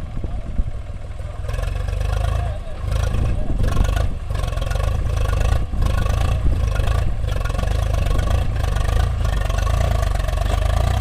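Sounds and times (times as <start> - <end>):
heavy diesel engine rumbling: 0.0 - 11.0.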